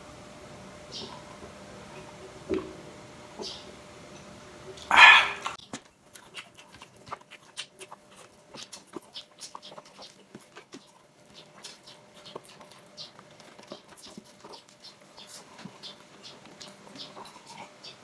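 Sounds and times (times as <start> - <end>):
chewing and mouth smacks: 4.9 - 18.0.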